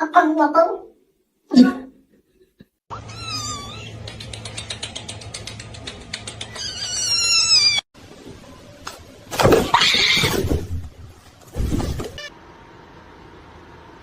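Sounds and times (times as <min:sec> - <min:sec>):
kitten mewing: 0:02.9 - 0:05.0.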